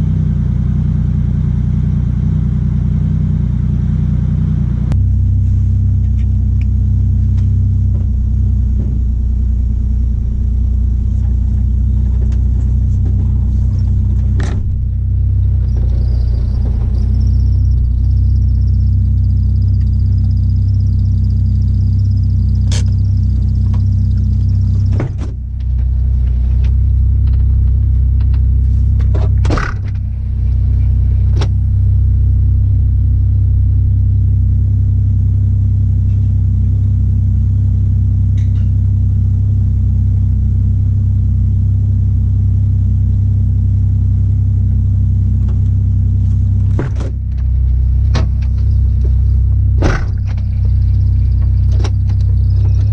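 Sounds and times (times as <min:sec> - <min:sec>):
car engine droning: 0:00.0 - 0:52.9.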